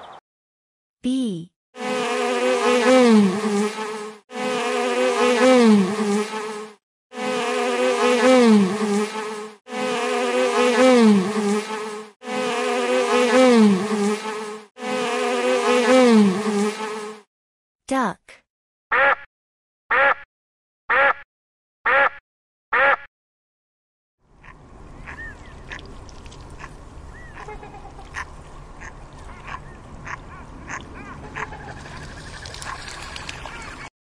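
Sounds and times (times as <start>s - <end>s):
honeybees buzzing: 1.8s - 17.3s.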